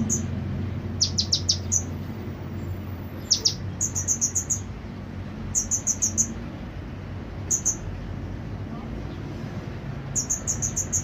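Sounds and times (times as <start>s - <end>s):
bird high sharp chirps: 0.0s - 2.0s, 2.6s - 4.7s, 5.5s - 6.4s, 7.4s - 7.9s, 10.1s - 11.0s.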